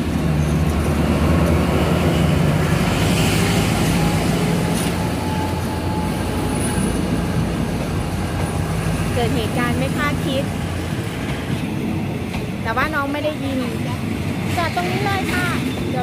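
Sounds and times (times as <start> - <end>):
locomotive engine drone: 0.0 - 16.0
train coaches rumbling on rails: 0.0 - 16.0.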